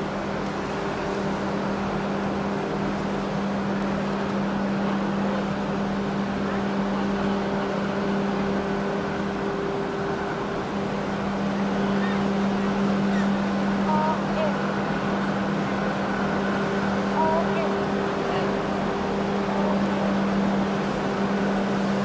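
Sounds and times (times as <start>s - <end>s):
boat engine droning: 0.0s - 22.0s
water wash: 0.0s - 22.0s.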